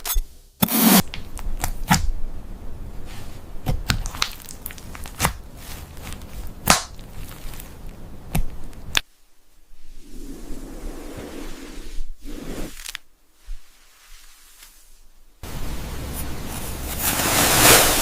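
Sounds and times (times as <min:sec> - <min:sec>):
loud cracks: 0:06.6 - 0:07.1.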